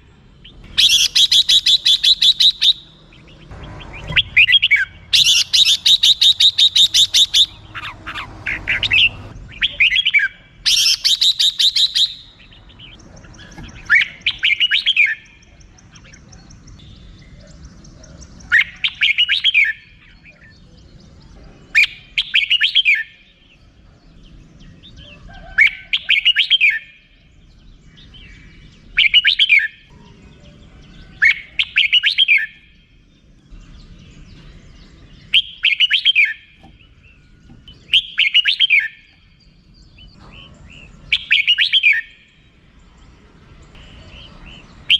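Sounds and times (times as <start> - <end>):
bird warbled song phrases: 0.0 - 44.9
bird chattering notes: 0.4 - 17.7, 18.3 - 20.6.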